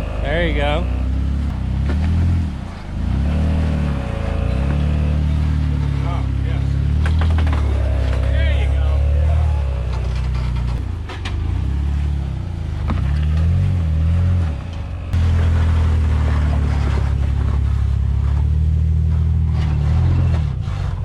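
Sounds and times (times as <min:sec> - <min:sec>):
engine revving under load: 0:00.0 - 0:21.0.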